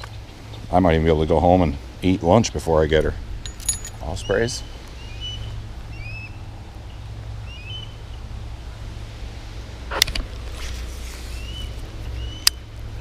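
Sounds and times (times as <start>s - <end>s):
low wind rumble: 0.0s - 13.0s
bird whistled chirps: 4.2s - 6.4s, 7.5s - 8.0s.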